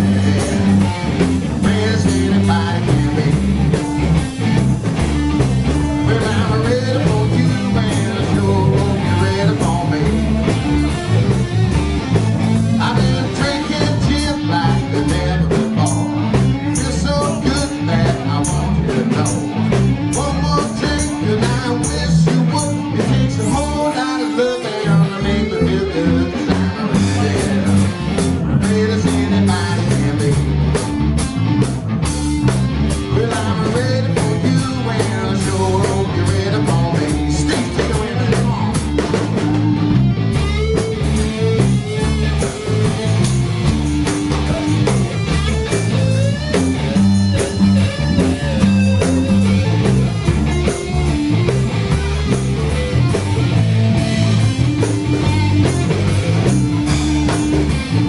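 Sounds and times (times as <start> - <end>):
person singing: 0.0 - 4.1, 5.7 - 11.3, 12.7 - 30.9, 33.0 - 43.2
drums with steady beat: 0.0 - 58.0
electric guitar: 0.0 - 58.0
stepping bass line: 0.0 - 58.0.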